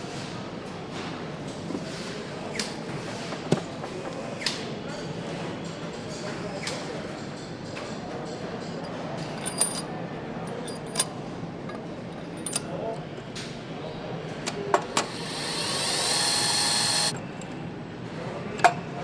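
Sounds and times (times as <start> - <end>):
power tool whirring: 14.8 - 17.2.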